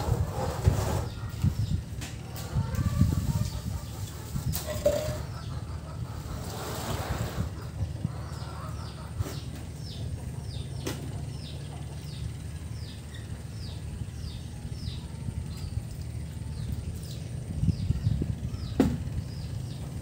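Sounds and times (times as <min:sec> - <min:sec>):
steady low rumble: 0:07.4 - 0:20.0
sharp knocks: 0:18.8 - 0:19.0.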